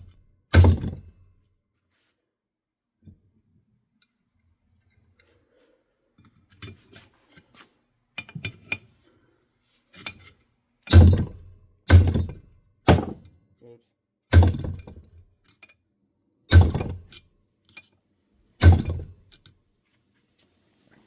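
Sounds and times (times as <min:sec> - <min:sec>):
heavy knocks: 0:12.9 - 0:13.2.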